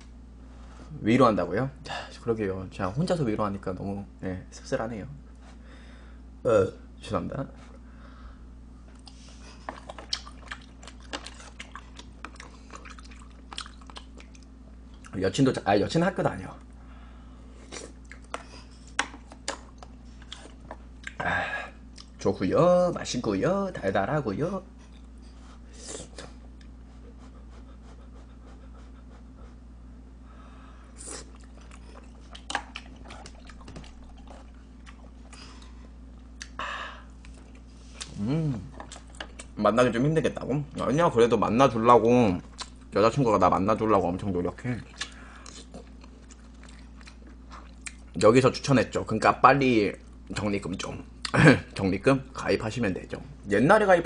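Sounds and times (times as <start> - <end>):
steady low hum: 0.0 - 54.0
close-up chewing: 8.9 - 15.1, 31.0 - 39.6, 44.8 - 48.2.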